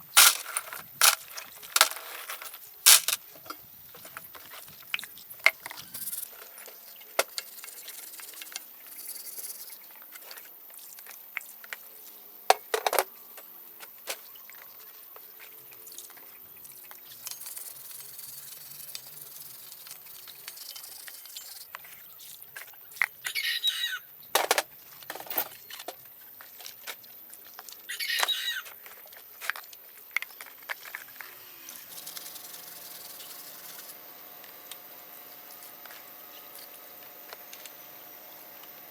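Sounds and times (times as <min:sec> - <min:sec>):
scraping: 0:00.0 - 0:03.2
clicks and knocks on parts: 0:00.2 - 0:03.2.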